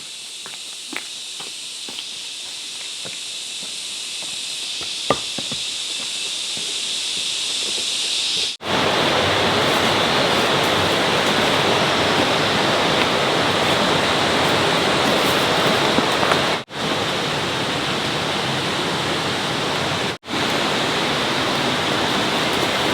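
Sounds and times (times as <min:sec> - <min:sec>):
thin high hiss: 0:00.0 - 0:16.6
rushing water: 0:08.5 - 0:22.9.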